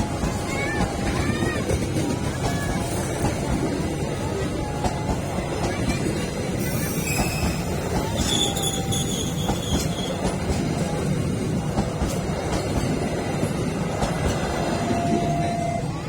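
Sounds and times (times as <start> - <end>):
train wheels rumbling on rails: 0.0 - 16.0
high wheel squeals: 6.6 - 10.4.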